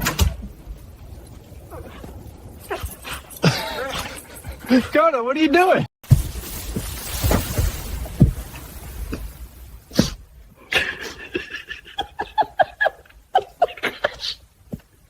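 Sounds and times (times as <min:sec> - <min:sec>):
thuds: 0:06.0 - 0:09.3.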